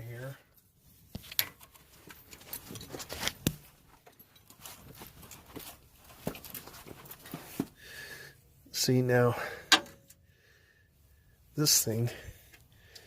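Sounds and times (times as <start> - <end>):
rustling of handling: 0.6 - 7.8.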